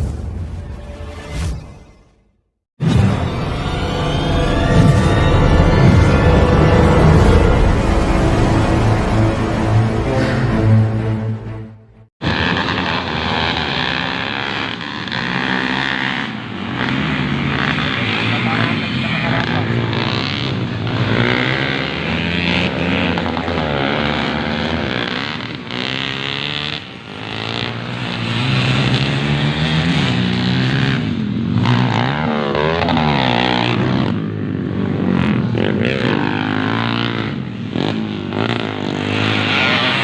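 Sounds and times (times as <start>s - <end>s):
dirt bike engines revving: 12.2s - 40.0s.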